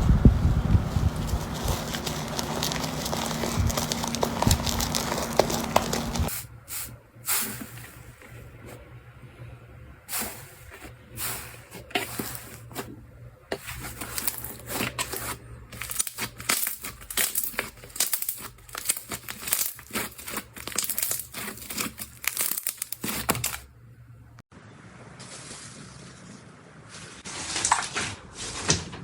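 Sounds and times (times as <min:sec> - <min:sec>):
slime crackling and popping: 0:01.0 - 0:06.3, 0:13.8 - 0:23.6.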